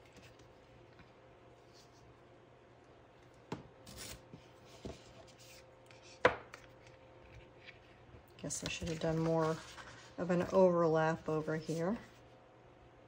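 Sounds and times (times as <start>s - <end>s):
paper rubbing: 8.8s - 10.2s.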